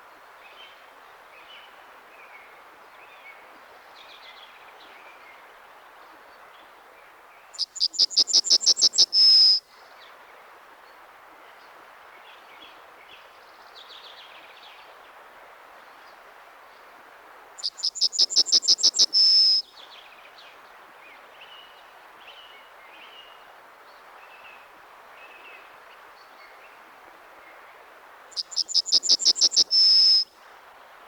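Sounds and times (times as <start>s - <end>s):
steady background hiss: 0.0s - 31.0s
faint bird calls: 7.6s - 9.6s, 17.6s - 19.6s, 28.3s - 30.3s.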